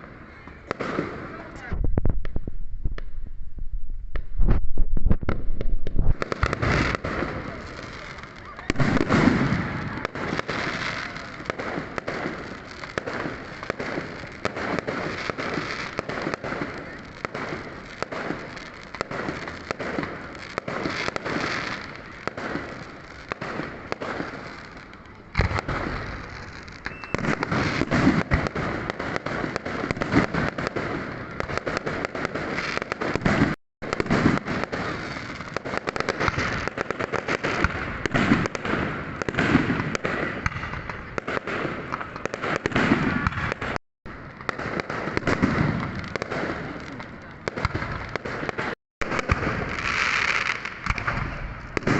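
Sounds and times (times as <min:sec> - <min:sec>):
fireworks bangs and crackling: 0:00.0 - 0:51.9
loud firework bang: 0:08.7 - 0:10.0.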